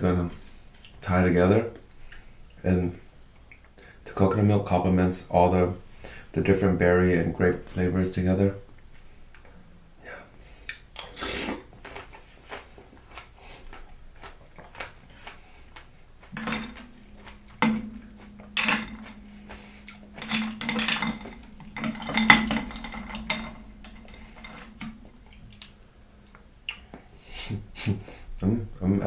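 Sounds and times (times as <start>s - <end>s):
low steady hum: 0.0s - 29.0s
eating noises: 10.7s - 17.4s
metal spoon clinking in bowl: 16.3s - 26.4s.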